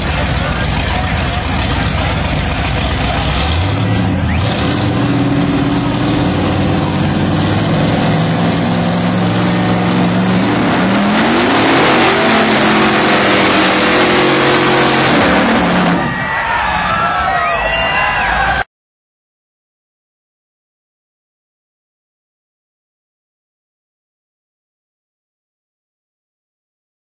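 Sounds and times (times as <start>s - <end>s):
truck engine revving hard: 0.0s - 16.3s.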